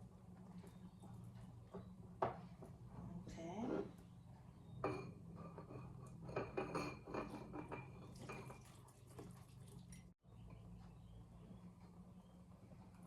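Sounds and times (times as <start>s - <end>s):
utensil clinking against mixing bowl: 4.7s - 10.1s.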